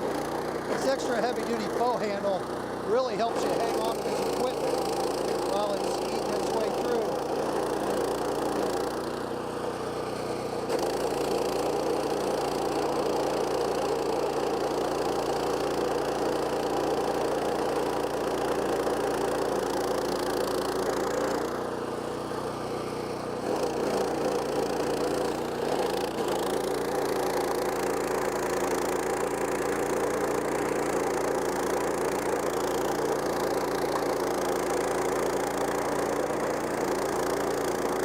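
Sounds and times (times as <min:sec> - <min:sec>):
cutting wheel grinding stump: 0:00.0 - 0:38.0
stump grinder engine running: 0:00.0 - 0:38.0.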